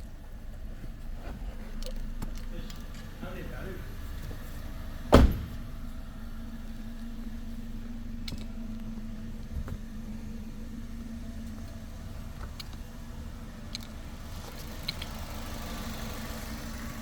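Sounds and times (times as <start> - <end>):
car engine idling: 0.0 - 17.0
sharp thump: 5.1 - 5.8
light engine ticks: 5.8 - 17.0.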